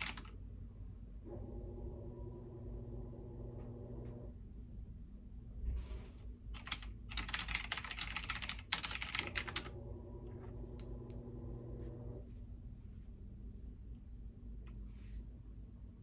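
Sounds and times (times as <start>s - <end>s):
typing on computer keyboard: 0.0s - 0.3s, 6.6s - 9.7s
steady low hum: 0.0s - 16.0s.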